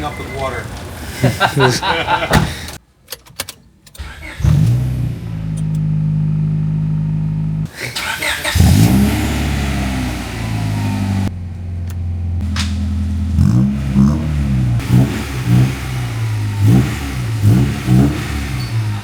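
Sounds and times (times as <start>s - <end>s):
car engine accelerating: 4.0s - 19.0s
clicks: 5.5s - 5.9s.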